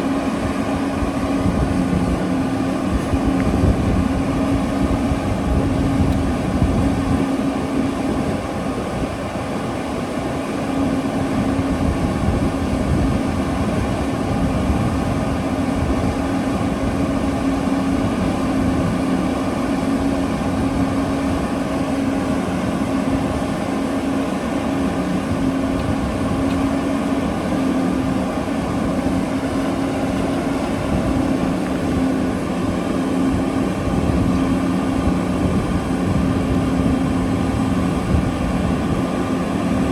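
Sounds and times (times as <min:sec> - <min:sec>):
diesel engines droning: 0:00.0 - 0:39.9.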